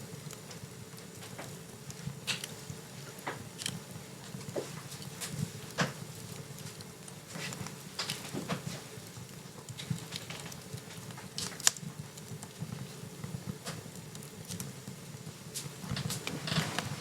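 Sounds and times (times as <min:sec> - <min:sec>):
flames rustling: 0:00.0 - 0:17.0
wood fire crackling: 0:00.0 - 0:17.0.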